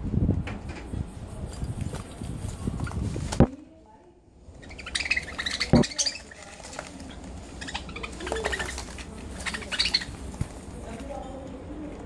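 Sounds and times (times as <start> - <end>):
budgerigar chirping and clicking: 4.6 - 6.4, 7.5 - 10.2.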